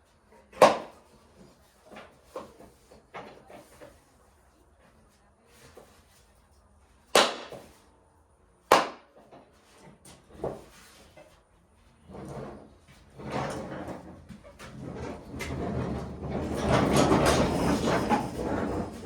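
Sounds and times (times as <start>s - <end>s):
shuffling and scraping of tools: 0.0s - 6.9s, 9.2s - 19.0s.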